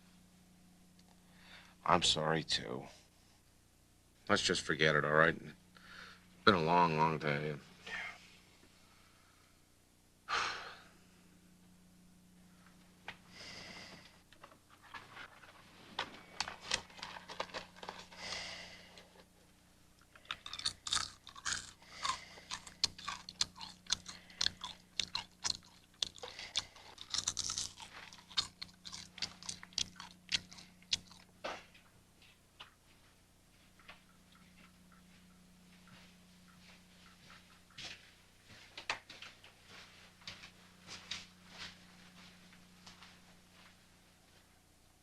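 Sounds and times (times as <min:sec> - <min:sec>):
steady low hum: 0:00.0 - 0:45.0
small sharp crunches and clicks: 0:14.3 - 0:18.4, 0:20.0 - 0:32.0.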